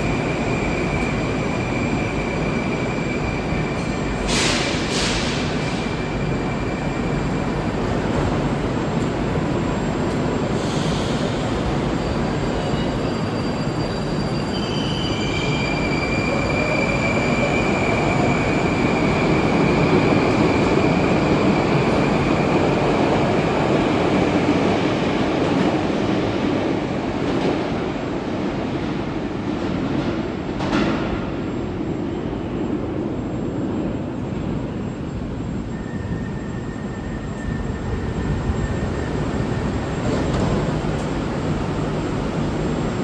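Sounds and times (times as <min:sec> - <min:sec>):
metro train rumbling: 0:00.0 - 0:43.0
high wheel squeal: 0:10.6 - 0:22.2, 0:35.6 - 0:40.0.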